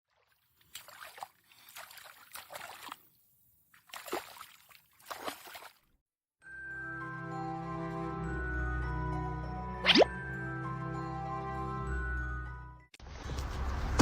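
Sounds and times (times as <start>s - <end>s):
water splashing and sloshing: 0.0s - 6.0s.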